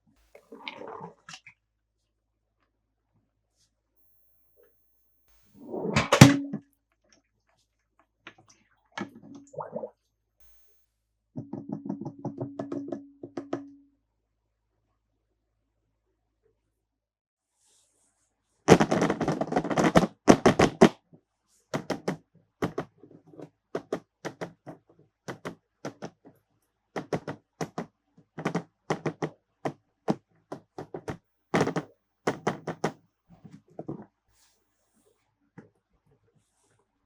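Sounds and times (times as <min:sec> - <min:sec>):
plastic toys clicking and knocking: 0:21.8 - 0:26.4, 0:27.0 - 0:33.0.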